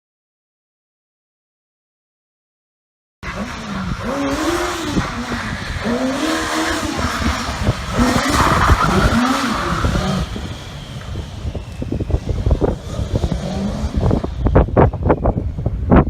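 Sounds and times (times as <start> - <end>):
motorcycle engine revving: 3.2 - 15.2.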